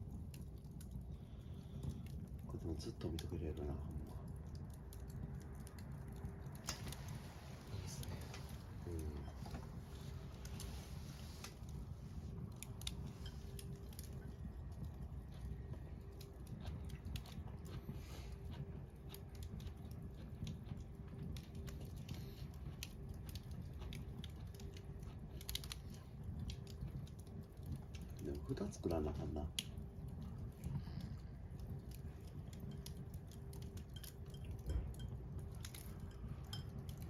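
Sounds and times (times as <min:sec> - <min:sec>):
campfire crackling: 0:00.0 - 0:37.0.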